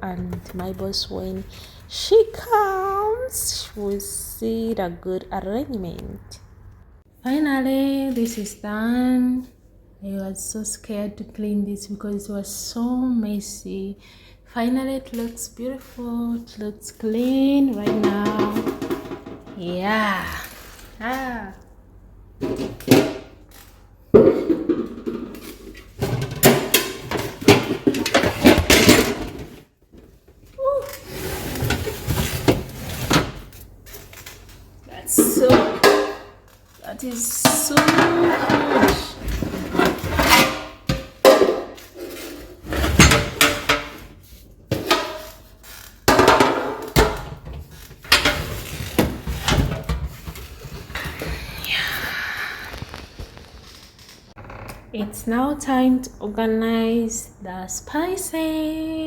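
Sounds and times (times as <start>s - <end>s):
kitchen items clattering: 16.9s - 21.3s, 22.3s - 29.8s, 30.9s - 51.6s.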